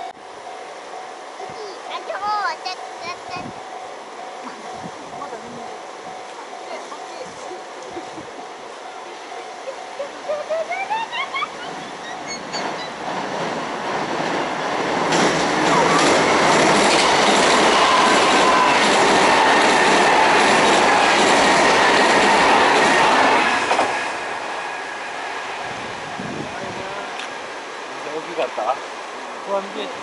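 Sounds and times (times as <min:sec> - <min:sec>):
electric train passing: 0:00.0 - 0:30.0
short rising chirps: 0:08.8 - 0:13.0
wheels clicking over rail joints: 0:12.0 - 0:24.4.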